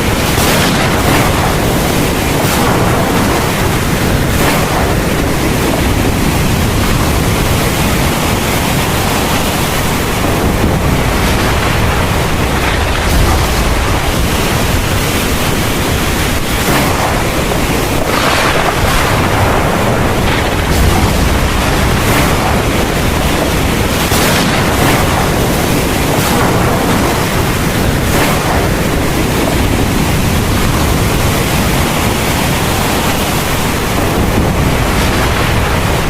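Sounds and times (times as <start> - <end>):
low rumble: 0.0 - 33.0
heavy rain pouring: 0.0 - 36.0.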